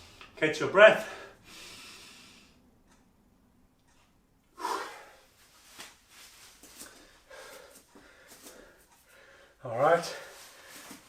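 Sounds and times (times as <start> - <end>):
man breathing hard: 1.0 - 2.6, 4.5 - 5.4, 6.7 - 9.6.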